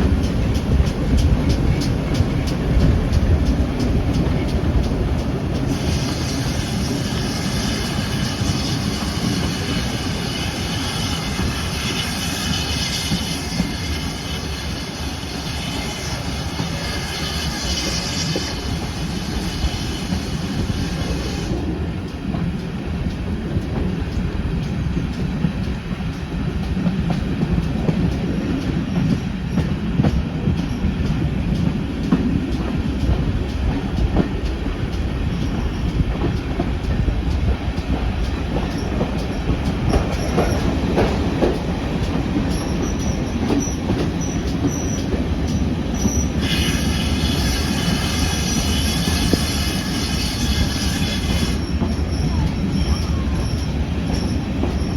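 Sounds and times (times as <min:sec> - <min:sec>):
rail joint clicks: 0:00.0 - 0:54.9
train wheels rumbling on rails: 0:00.0 - 0:54.9
high squeal: 0:46.0 - 0:54.9.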